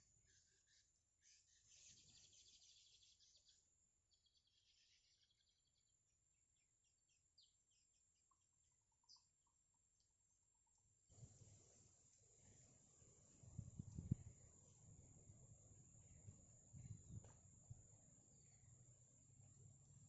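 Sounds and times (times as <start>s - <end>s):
bird chirping: 0.0s - 10.2s, 18.2s - 18.8s.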